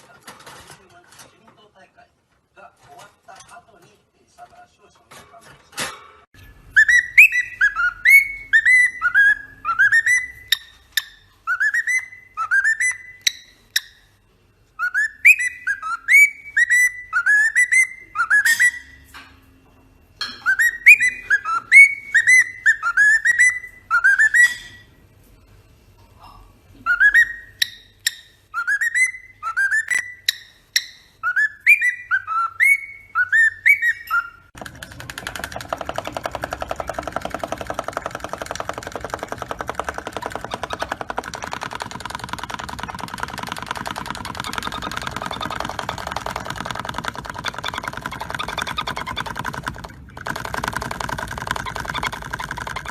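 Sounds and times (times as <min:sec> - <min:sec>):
parrot whistling a tune: 0:06.4 - 0:14.0, 0:14.8 - 0:19.1, 0:20.2 - 0:24.9, 0:26.8 - 0:34.5.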